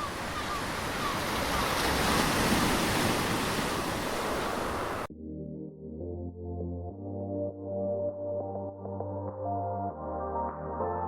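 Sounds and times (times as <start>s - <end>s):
rushing water: 0.0s - 5.1s
wind: 0.0s - 5.1s
music: 5.1s - 11.0s.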